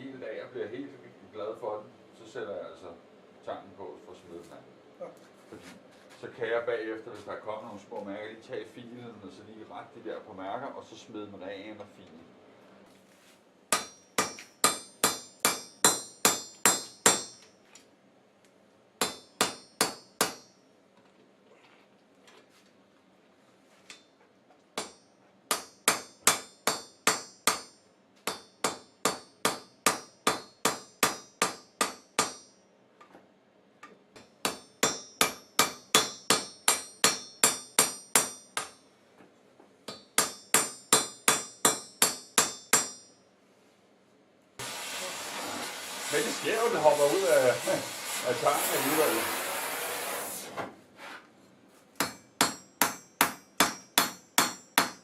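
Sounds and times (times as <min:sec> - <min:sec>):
hammer striking steel on anvil: 0:13.7 - 0:17.5, 0:19.0 - 0:20.6, 0:24.8 - 0:32.6, 0:34.2 - 0:38.8, 0:39.9 - 0:43.2, 0:52.0 - 0:55.0.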